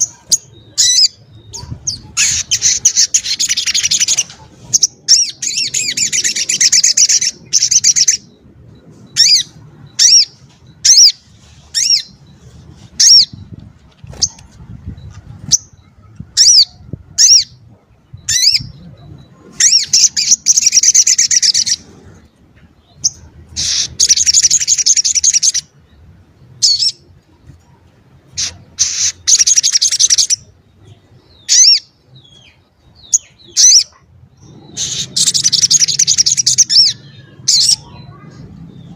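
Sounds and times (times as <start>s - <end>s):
bird trilled chattering: 28.3s - 30.5s, 33.1s - 38.3s.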